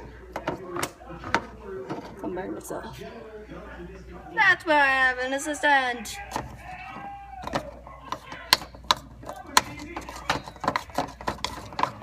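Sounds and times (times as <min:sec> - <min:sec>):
spoon scraping bowl: 0:07.4 - 0:12.0.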